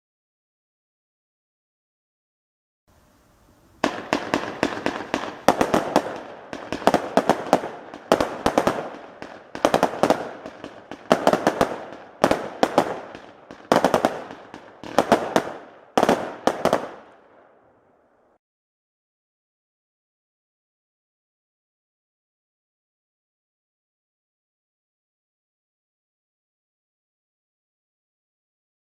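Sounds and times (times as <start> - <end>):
fireworks cracks and bangs: 3.8 - 17.5.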